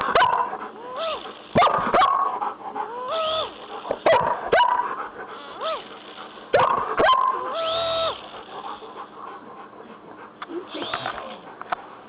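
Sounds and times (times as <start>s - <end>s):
dog whining yelps: 0.1s - 5.9s, 6.5s - 8.4s
dog barking sharply: 4.1s - 4.9s, 6.6s - 7.4s.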